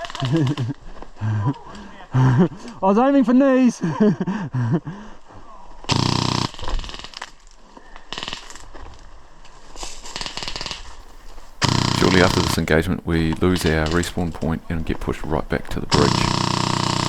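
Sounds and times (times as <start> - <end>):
airsoft guns firing bursts: 5.9 - 7.3, 10.3 - 17.0.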